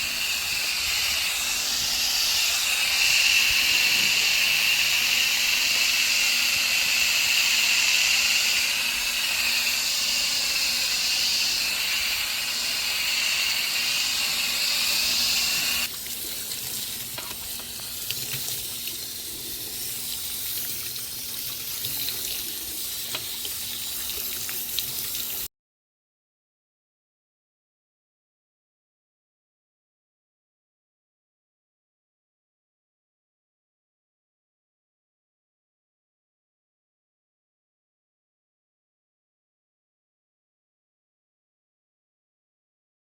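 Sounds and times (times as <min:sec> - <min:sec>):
hose water spraying: 0:00.0 - 0:25.5.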